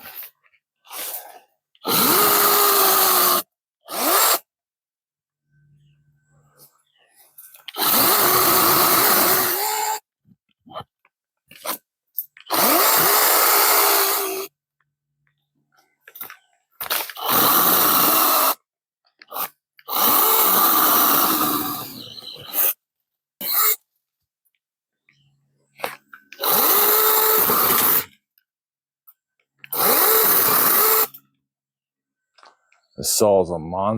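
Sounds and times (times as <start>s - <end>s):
chainsaw revving: 1.8s - 4.5s, 7.7s - 10.0s, 12.5s - 14.5s, 16.9s - 18.6s, 19.3s - 22.8s, 26.4s - 28.1s, 29.7s - 31.2s.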